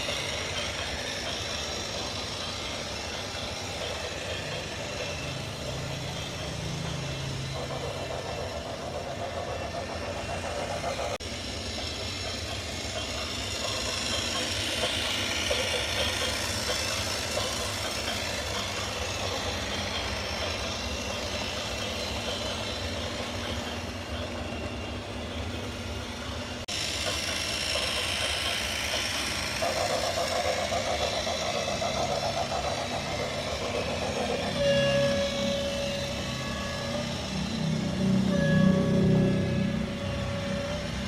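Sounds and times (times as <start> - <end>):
toy backhoe engine drone: 0.0 - 41.0
high whine: 33.2 - 41.0.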